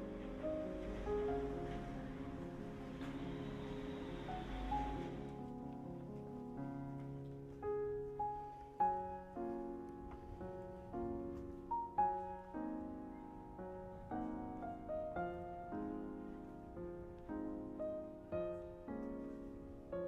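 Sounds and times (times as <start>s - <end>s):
street background noise: 0.0s - 6.5s
slow piano music: 0.0s - 20.0s.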